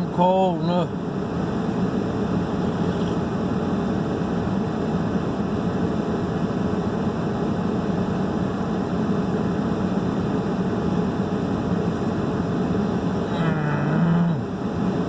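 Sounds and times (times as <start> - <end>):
heater fan blowing: 0.0 - 15.0
low hum: 11.9 - 15.0.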